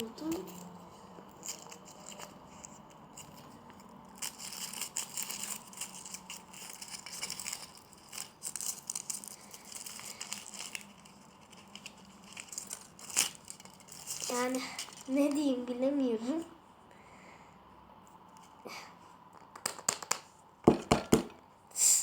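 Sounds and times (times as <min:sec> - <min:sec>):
packet wrapping crinkling: 0:00.0 - 0:15.7.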